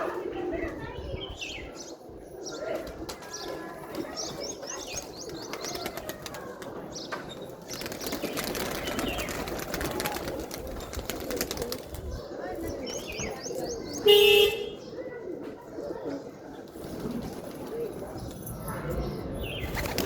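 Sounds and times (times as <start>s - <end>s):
pigeons cooing: 7.6s - 14.2s, 14.8s - 20.0s.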